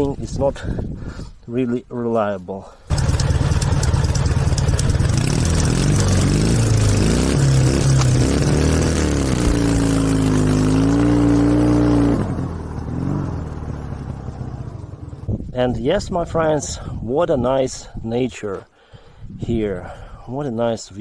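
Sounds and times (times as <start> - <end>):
motorcycle engine revving: 2.9 - 15.5.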